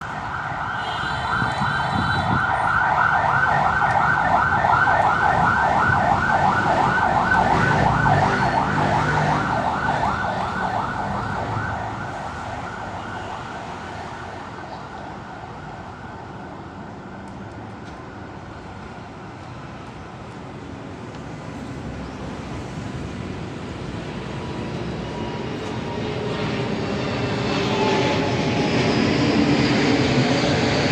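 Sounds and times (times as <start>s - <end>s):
low traffic rumble: 0.0s - 30.9s
siren warbling yelp: 0.2s - 14.0s.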